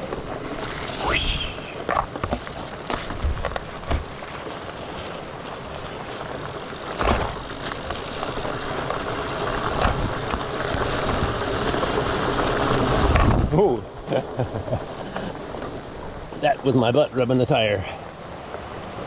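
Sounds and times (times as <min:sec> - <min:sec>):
bike tyres rolling over rocks: 0:00.0 - 0:19.0
creek water flowing: 0:00.0 - 0:19.0.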